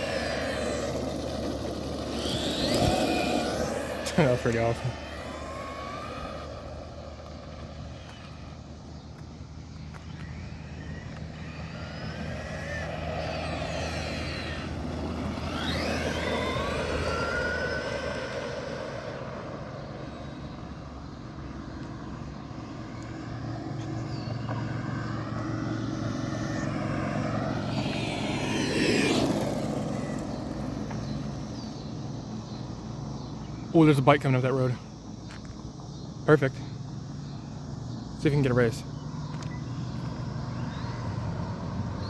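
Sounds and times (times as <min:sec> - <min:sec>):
electric toy truck motor whine: 0:00.0 - 0:32.0
road vehicles passing: 0:00.0 - 0:42.0.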